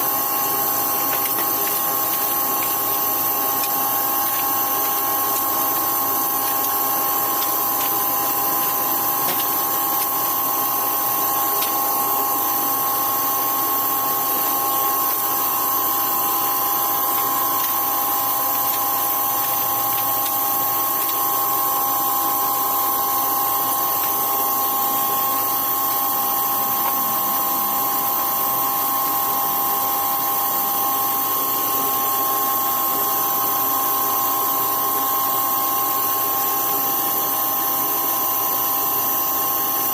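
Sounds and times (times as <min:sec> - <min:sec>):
steady hiss: 0:00.0 - 0:23.0
power tool motor whining: 0:00.0 - 0:28.3.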